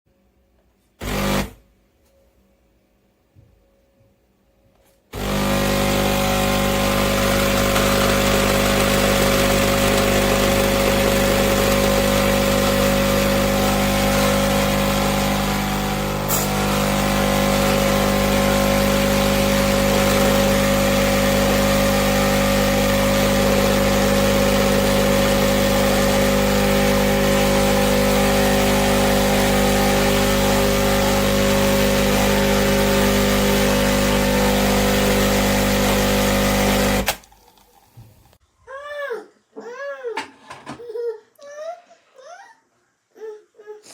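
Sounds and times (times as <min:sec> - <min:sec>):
coffee machine pump humming: 0:01.0 - 0:01.5, 0:05.2 - 0:38.4.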